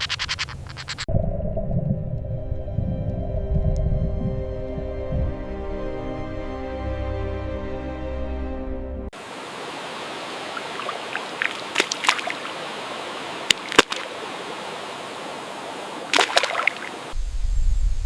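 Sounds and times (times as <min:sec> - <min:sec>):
sharp clicks: 0:00.0 - 0:01.1
water flowing: 0:09.2 - 0:17.2.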